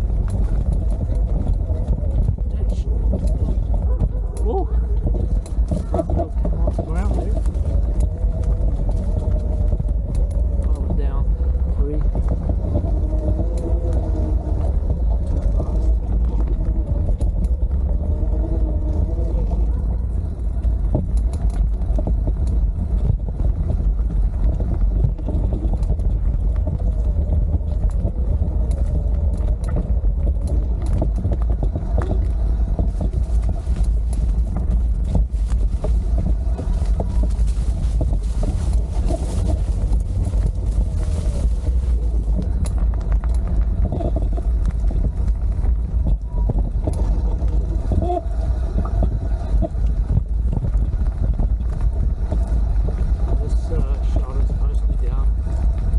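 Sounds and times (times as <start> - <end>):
road noise: 0.0 - 55.9
small clicks and rattles: 0.0 - 55.9
wind rumbling on microphone: 0.0 - 55.9.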